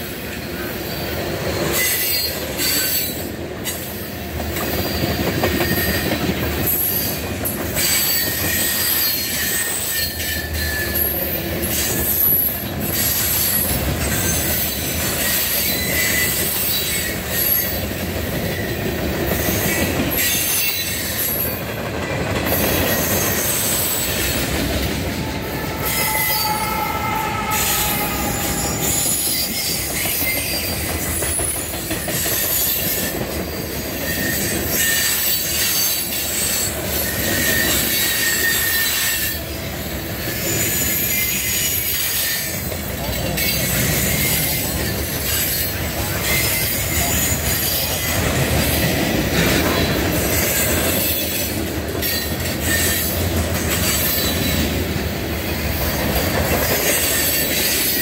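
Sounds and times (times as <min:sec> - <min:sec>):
high-pitched wheel squeal: 0:07.8 - 0:17.9, 0:22.7 - 0:32.9, 0:34.0 - 0:39.4
freight cars rumbling on rails: 0:10.4 - 0:58.0
locomotive passing: 0:10.6 - 0:34.7.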